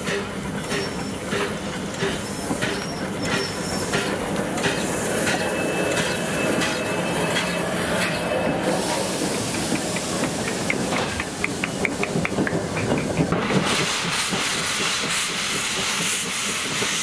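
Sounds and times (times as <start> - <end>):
train rolling along track: 0.0 - 17.0
wheel flange squeal: 0.7 - 1.3, 2.2 - 9.3
wheels clicking over rail joints: 9.4 - 17.0.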